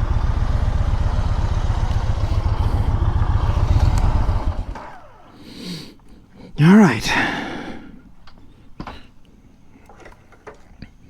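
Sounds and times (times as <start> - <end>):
motorcycle engine idling: 0.0 - 5.4.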